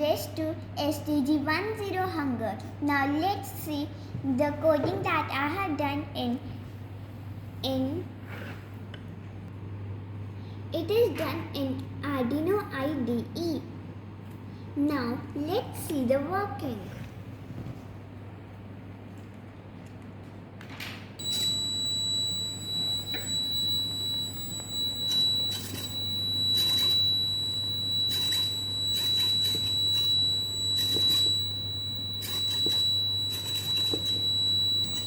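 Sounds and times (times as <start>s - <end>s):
high-pitched buzzer tone: 21.2s - 35.0s
low hum: 21.2s - 35.0s
motor bursts: 21.2s - 35.0s.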